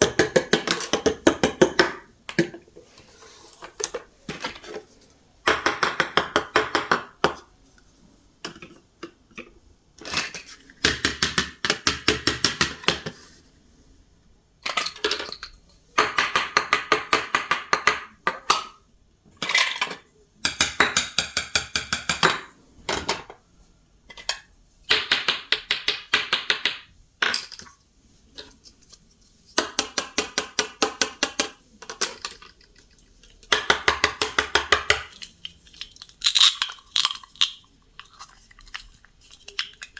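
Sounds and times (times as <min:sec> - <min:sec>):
plastic toys clattering: 0:00.0 - 0:04.9, 0:14.6 - 0:15.6, 0:19.4 - 0:20.1, 0:24.1 - 0:25.1, 0:26.5 - 0:27.8, 0:31.3 - 0:39.9.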